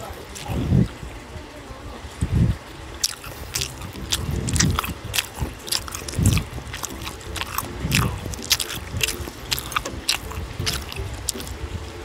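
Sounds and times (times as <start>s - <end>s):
person chewing food: 0.4s - 0.6s, 3.0s - 11.6s
wet mouth clicks and smacks: 3.0s - 11.6s.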